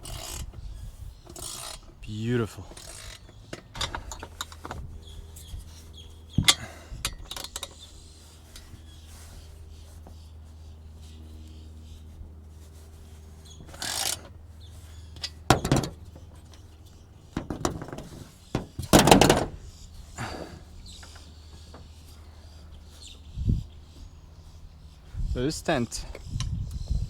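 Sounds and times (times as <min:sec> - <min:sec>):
knocks and thuds: 0:15.5 - 0:16.0, 0:17.4 - 0:19.6.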